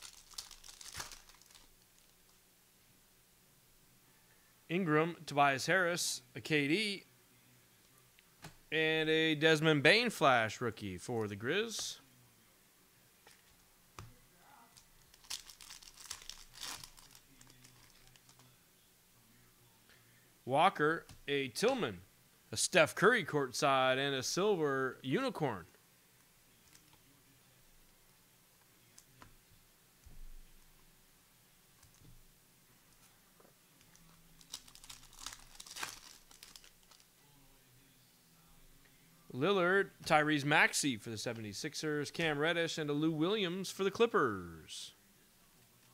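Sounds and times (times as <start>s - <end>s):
foil wrapper crinkling and tearing: 0.0s - 2.2s, 14.8s - 18.5s, 33.9s - 37.0s.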